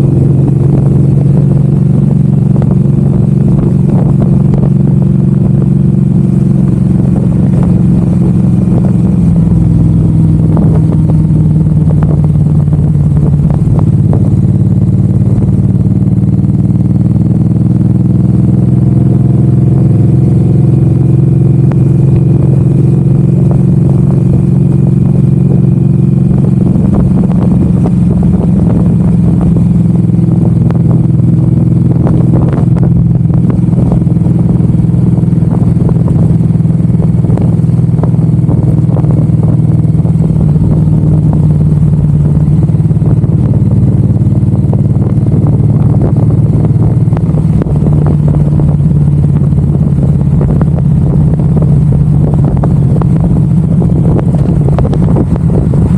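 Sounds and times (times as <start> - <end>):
motorcycle engine cruising: 0.0 - 55.9.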